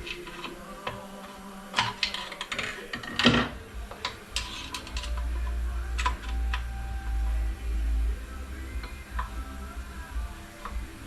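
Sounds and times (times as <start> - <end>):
metal scrape: 0.0 - 6.6
steady low hum: 3.4 - 11.0.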